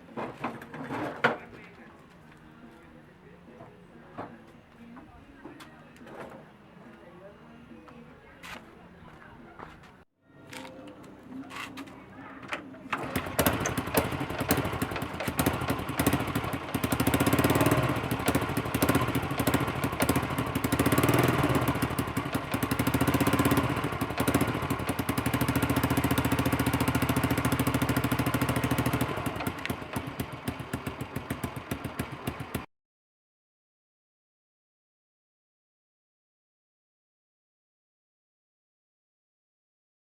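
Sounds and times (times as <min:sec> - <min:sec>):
motorcycle engine revving: 0:12.9 - 0:32.7.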